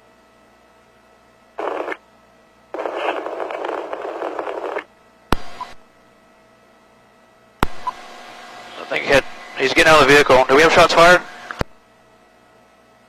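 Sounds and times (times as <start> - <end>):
faint steady hum: 0.0 - 13.0
radio static burst: 1.6 - 2.0, 2.8 - 5.8, 8.7 - 11.6
garbled radio transmission: 2.8 - 4.9, 8.7 - 11.6.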